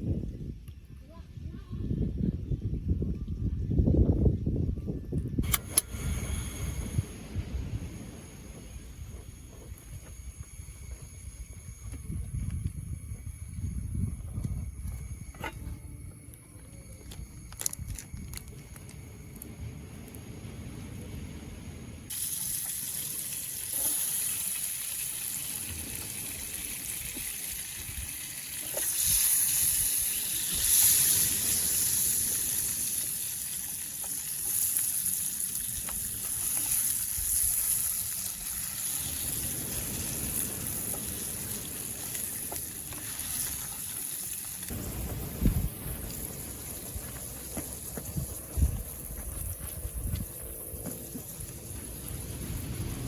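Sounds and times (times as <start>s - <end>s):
wind buffeting microphone: 0.0s - 22.1s, 44.7s - 53.0s.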